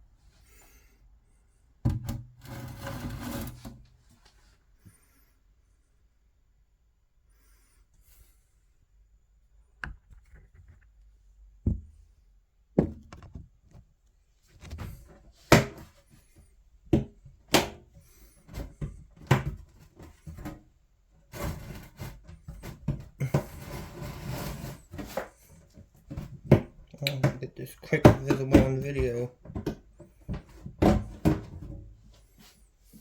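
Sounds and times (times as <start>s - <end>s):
knocks and thumps of handling: 11.6s - 12.1s, 12.8s - 16.0s, 16.9s - 20.6s, 22.2s - 23.7s, 24.9s - 32.6s.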